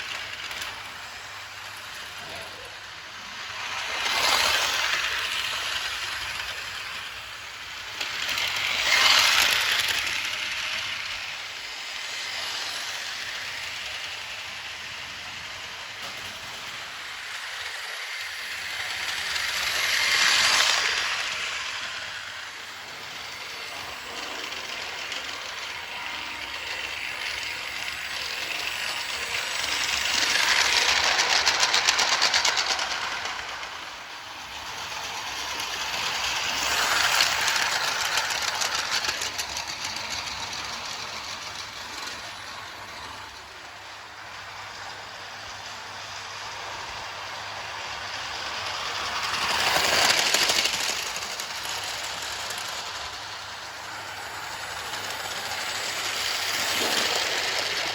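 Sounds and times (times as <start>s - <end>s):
toy train motor whirring: 0.0s - 57.9s
toy train wheels rattling: 0.0s - 57.9s.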